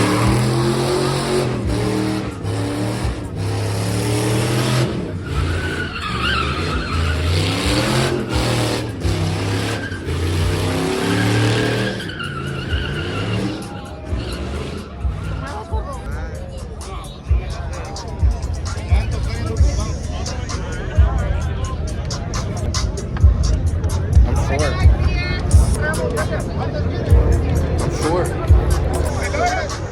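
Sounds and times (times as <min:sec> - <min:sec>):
tyres squealing: 0:00.0 - 0:23.0
truck engine revving: 0:00.0 - 0:29.9.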